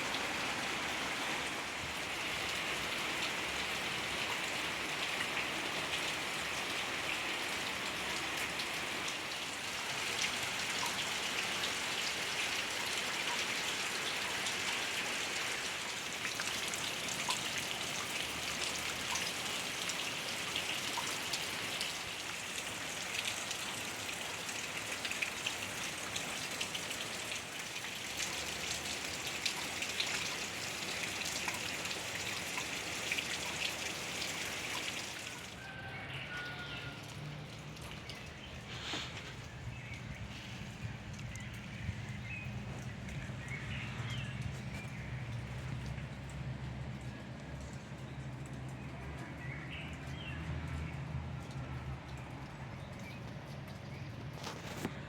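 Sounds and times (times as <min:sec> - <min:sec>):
rain falling: 0:00.0 - 0:55.0
raindrop ticks: 0:36.8 - 0:55.0.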